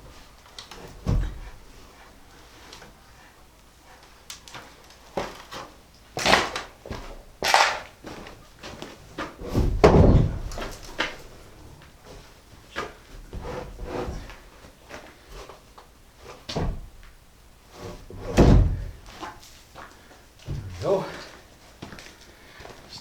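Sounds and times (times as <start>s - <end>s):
heavy thud: 9.5s - 10.5s, 18.2s - 19.0s, 20.5s - 20.9s
heavy object knocking and banging: 9.6s - 10.5s.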